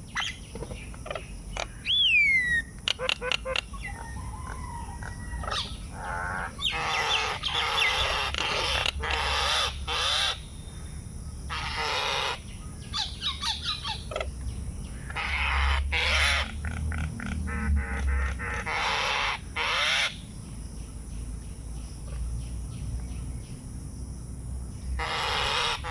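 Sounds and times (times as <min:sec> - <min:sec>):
birds harsh calls: 0:00.0 - 0:21.5, 0:24.8 - 0:25.9.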